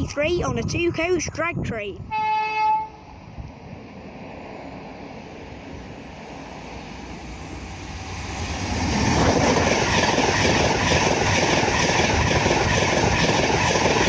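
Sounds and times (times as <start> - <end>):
diesel locomotive passing: 2.0 - 14.0
wheel-on-rail running noise: 7.9 - 14.0.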